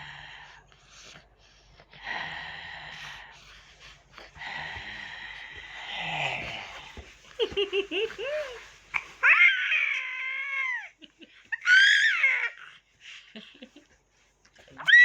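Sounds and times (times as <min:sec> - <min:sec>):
baby high-pitched squeals: 0:09.2 - 0:10.9, 0:11.6 - 0:12.7.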